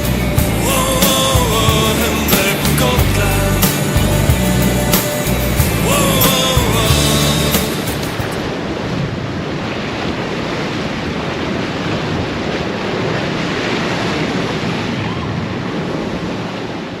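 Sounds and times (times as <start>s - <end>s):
wind rushing: 0.0s - 9.6s
sea waves: 0.0s - 17.0s.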